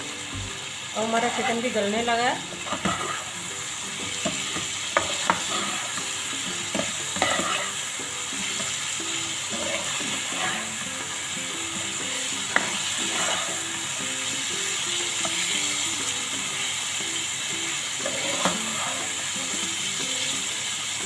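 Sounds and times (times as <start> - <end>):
chicken sizzling in a pan: 0.0 - 21.0
spatula scraping and clicking on pan: 2.6 - 3.4, 4.2 - 7.8, 9.5 - 10.8, 12.5 - 13.6, 18.0 - 19.1.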